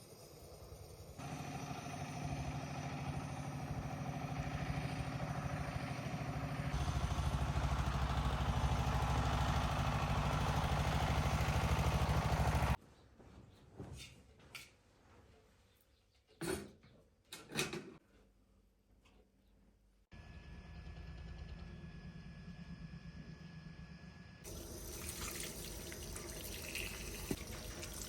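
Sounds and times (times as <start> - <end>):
engine running: 0.2 - 12.8, 20.1 - 28.0.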